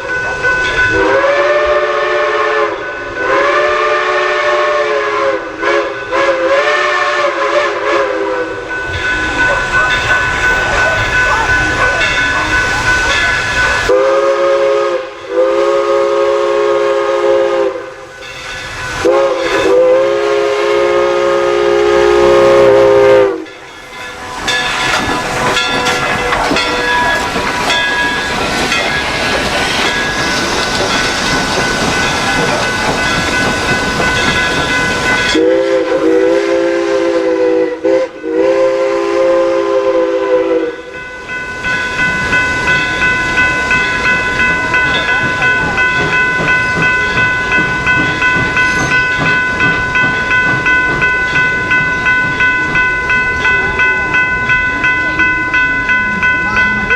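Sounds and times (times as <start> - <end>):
steam locomotive chime whistle: 0.0 - 56.9
steam hiss: 0.2 - 40.8.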